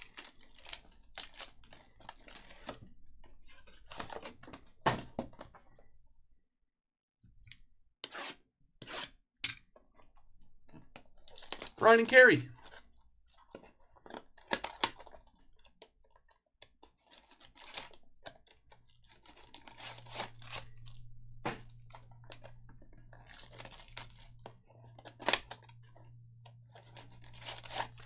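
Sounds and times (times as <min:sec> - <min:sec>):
trading cards and wrappers crinkling: 0:00.0 - 0:04.7, 0:11.0 - 0:28.0.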